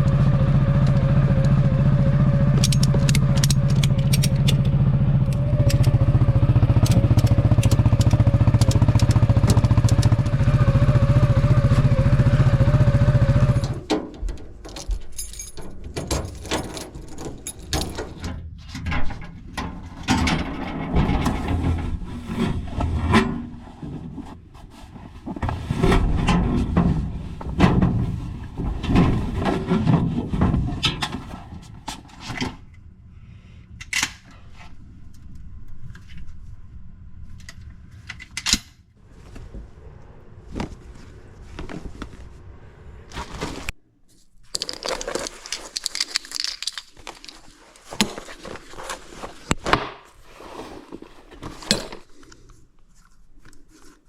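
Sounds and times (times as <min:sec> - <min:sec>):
buggy engine running: 0:00.0 - 0:13.9
clattering and scraping: 0:12.6 - 0:32.8, 0:43.1 - 0:54.0.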